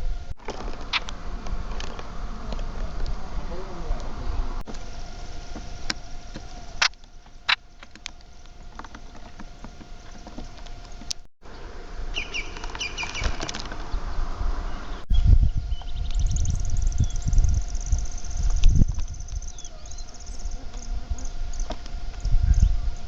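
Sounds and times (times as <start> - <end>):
faint steady hum: 0.0 - 23.0
small birds chirping: 0.6 - 23.0
sharp clicks: 5.8 - 11.3.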